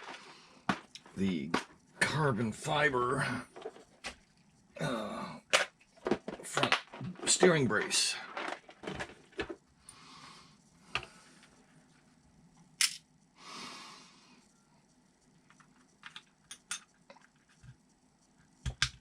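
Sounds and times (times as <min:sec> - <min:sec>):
small hard parts clicking: 0:05.4 - 0:09.6
soft breaths: 0:09.7 - 0:12.0, 0:13.3 - 0:15.1.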